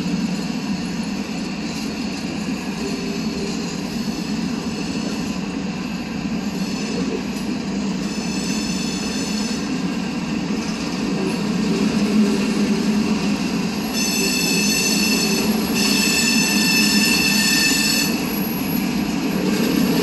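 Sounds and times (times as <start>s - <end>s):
freight train wheels rumbling: 0.0s - 20.0s
high-pitched wheel squeal: 8.0s - 9.8s, 13.8s - 18.8s.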